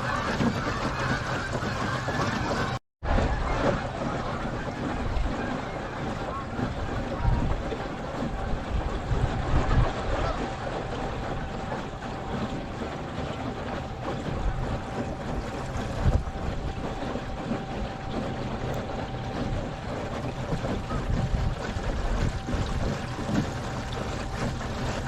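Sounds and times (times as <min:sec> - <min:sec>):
water wash: 0:00.0 - 0:25.0
wind buffeting microphone: 0:00.0 - 0:25.0
electric outboard motor whine: 0:00.8 - 0:25.0.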